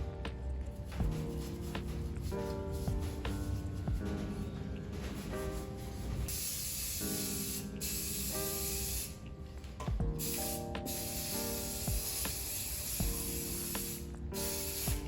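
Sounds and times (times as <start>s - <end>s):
spray paint hissing: 6.3s - 9.2s, 10.2s - 15.0s.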